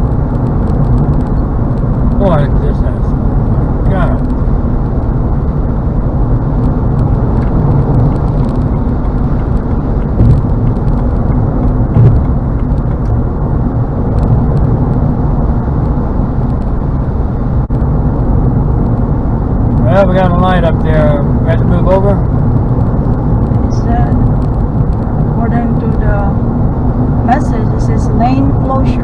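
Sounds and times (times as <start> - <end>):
car road noise rumble: 0.0 - 29.0
car bumps: 4.2 - 15.1.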